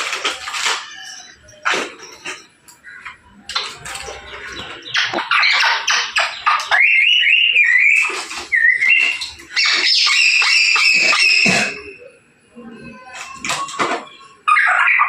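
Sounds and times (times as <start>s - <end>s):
parrot squawking: 4.3s - 12.1s, 13.0s - 15.0s
parrot whistling: 5.3s - 12.1s.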